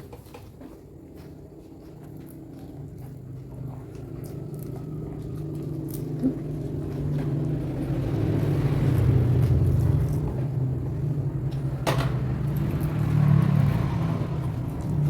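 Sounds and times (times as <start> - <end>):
chewing clicks: 1.8 - 10.4, 12.4 - 15.0
passing vehicle engine hum: 2.1 - 15.0.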